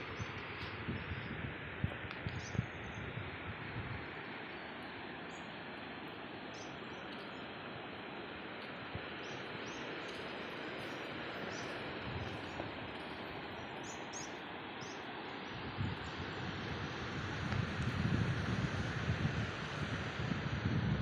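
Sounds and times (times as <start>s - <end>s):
wind buffeting microphone: 0.0s - 4.2s, 8.9s - 13.7s, 15.4s - 21.0s.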